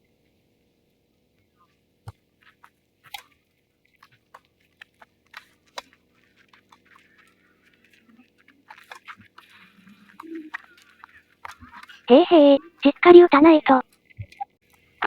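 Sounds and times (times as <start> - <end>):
shoes on tennis court: 4.0 - 12.1.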